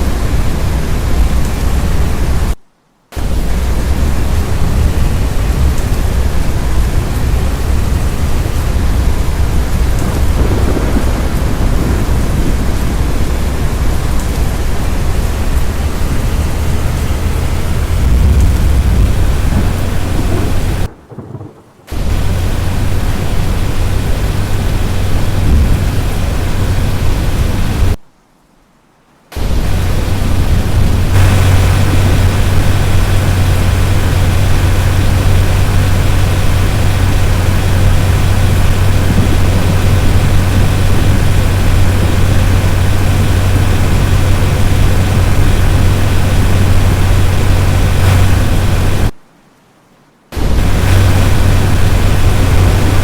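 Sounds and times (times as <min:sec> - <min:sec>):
storm wind and rain: 0:00.0 - 0:53.0
wind buffeting microphone: 0:03.2 - 0:28.0, 0:29.4 - 0:49.1, 0:50.4 - 0:53.0.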